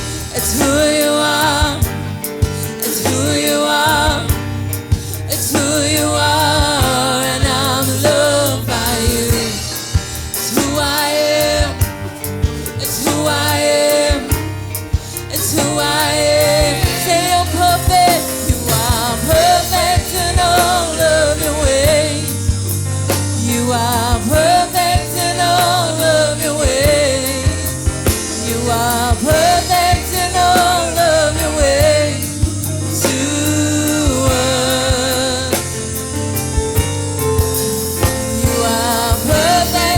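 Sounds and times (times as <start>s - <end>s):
band with steady drum beat: 0.0s - 39.9s
person singing: 0.0s - 39.9s.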